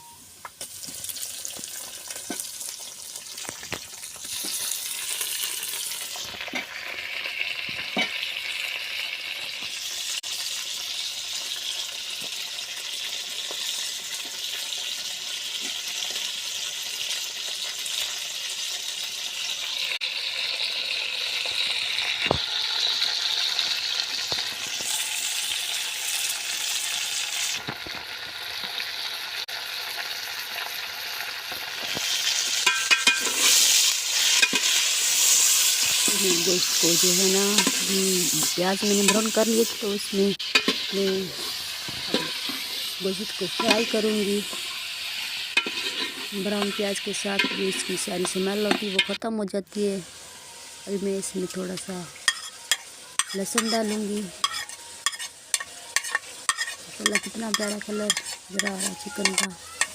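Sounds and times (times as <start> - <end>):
food sizzling in hot oil: 0.0 - 59.9.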